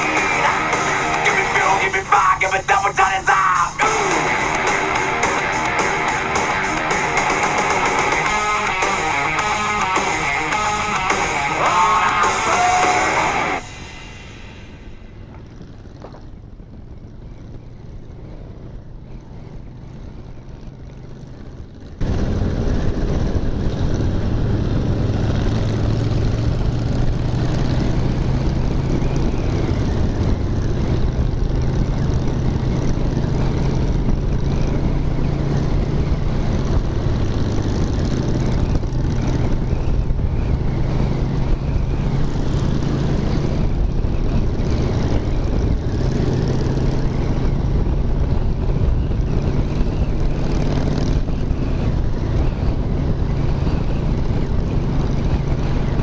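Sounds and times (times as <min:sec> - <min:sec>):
motorcycle engine drone: 0:00.0 - 0:56.0
wind rushing on microphone: 0:21.5 - 0:56.0.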